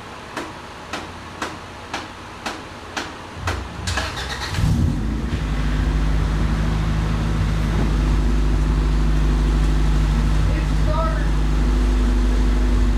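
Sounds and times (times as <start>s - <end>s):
car engine starting and idling: 3.4s - 12.9s.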